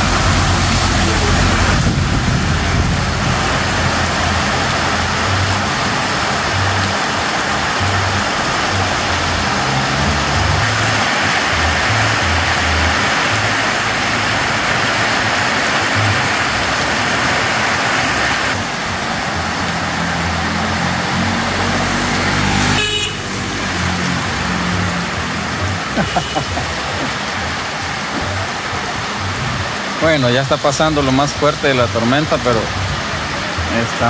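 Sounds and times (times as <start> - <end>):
heavy rain pouring on street: 0.0 - 34.0
low bass line music: 0.0 - 34.0.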